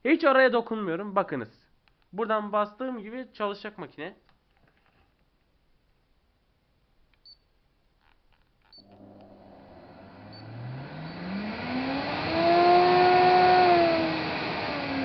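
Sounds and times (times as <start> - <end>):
clicks: 8.0 - 9.4
vacuum motor whine: 8.8 - 15.0.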